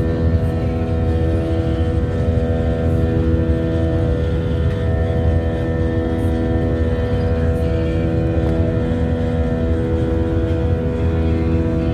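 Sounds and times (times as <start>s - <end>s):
airplane engines droning: 0.0s - 11.9s.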